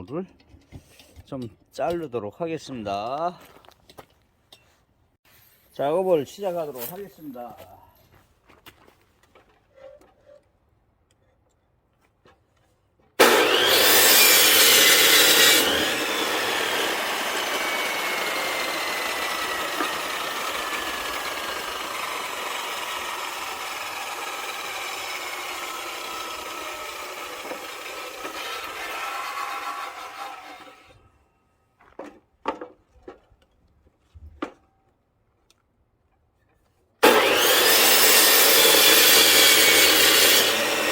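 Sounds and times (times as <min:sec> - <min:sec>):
power saw cutting log: 0:13.2 - 0:31.0, 0:37.0 - 0:40.9.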